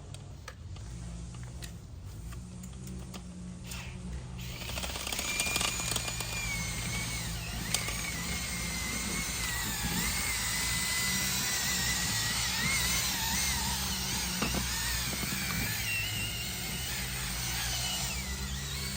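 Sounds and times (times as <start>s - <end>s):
power drill motor whine: 2.8s - 18.9s.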